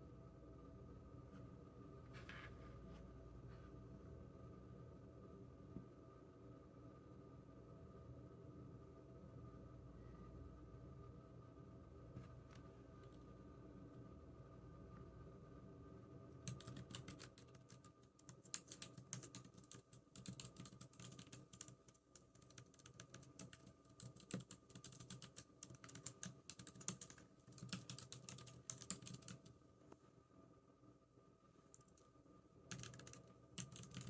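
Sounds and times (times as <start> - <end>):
computer keyboard typing: 16.4 - 29.5, 32.7 - 34.0.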